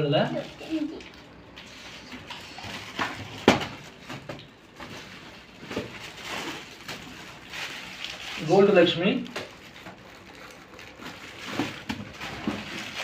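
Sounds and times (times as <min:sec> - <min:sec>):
cardboard boxes knocking and rustling: 0:02.7 - 0:07.0, 0:11.4 - 0:13.0.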